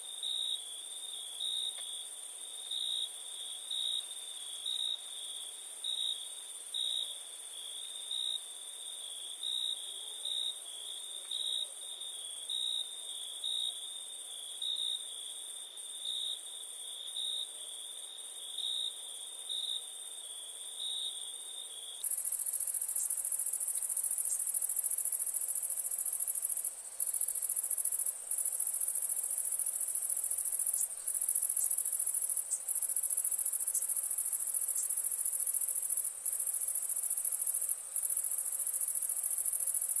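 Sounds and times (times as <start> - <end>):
cricket chirping: 0.0 - 40.0
high insect trill: 22.0 - 40.0
loud high-pitched insect trill: 22.0 - 40.0.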